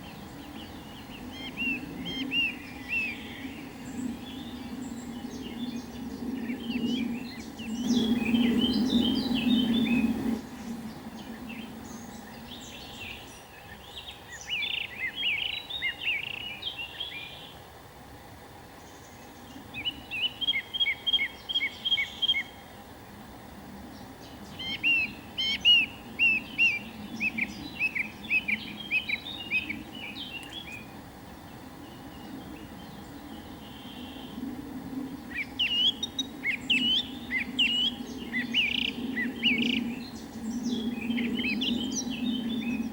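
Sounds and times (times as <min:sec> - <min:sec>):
bird chirping: 0:00.0 - 0:17.6, 0:18.8 - 0:22.6, 0:23.9 - 0:34.4, 0:35.2 - 0:42.9.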